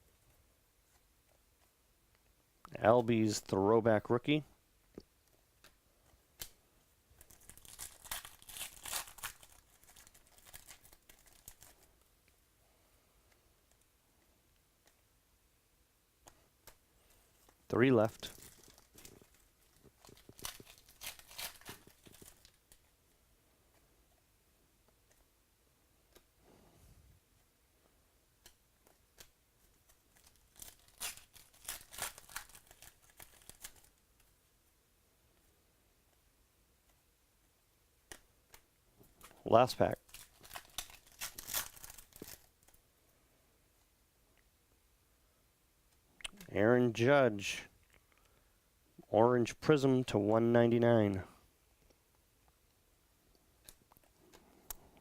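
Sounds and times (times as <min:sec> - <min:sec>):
wrapper tearing and crinkling: 0:07.2 - 0:11.9, 0:18.1 - 0:22.8, 0:29.9 - 0:34.0, 0:39.9 - 0:42.8.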